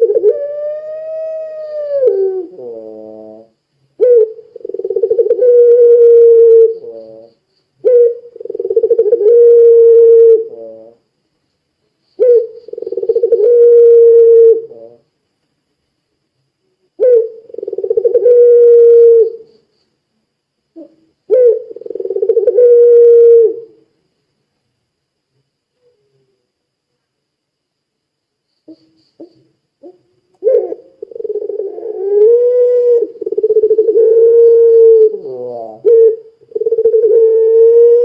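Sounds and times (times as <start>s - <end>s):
dove cooing: 0.0s - 11.0s, 12.2s - 15.1s, 17.0s - 19.5s, 20.8s - 23.8s, 28.7s - 38.0s.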